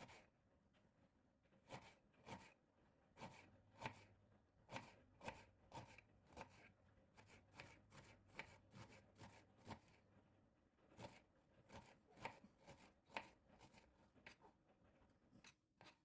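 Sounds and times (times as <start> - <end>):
knife chopping on cutting board: 1.7 - 2.5, 3.2 - 4.1, 4.7 - 10.0, 11.0 - 14.4, 15.4 - 16.0.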